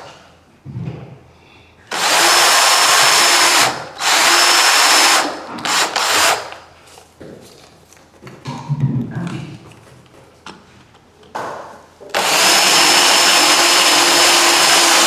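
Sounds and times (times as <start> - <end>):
power drill boring into wood: 1.9 - 6.6, 12.2 - 15.0.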